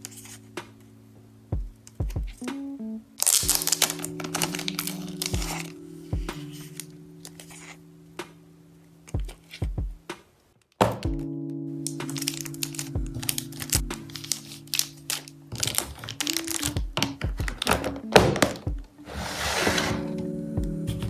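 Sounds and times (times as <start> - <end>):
soft light music: 0.0 - 21.0
plastic packaging crinkling: 3.2 - 5.8, 12.0 - 17.9.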